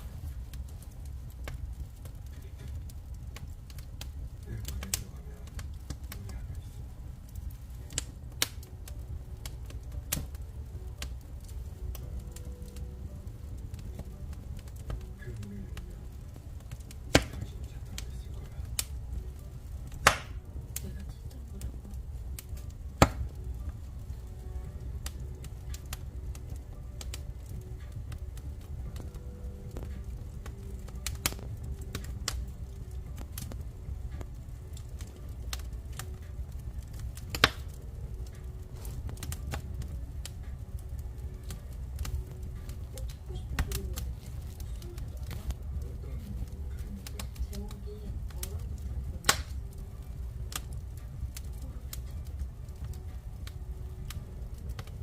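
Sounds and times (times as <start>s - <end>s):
low fire rumble: 0.0s - 55.0s
wood fire crackling: 0.0s - 55.0s
loud sharp pop: 17.1s - 17.4s, 20.0s - 20.4s, 23.0s - 23.3s.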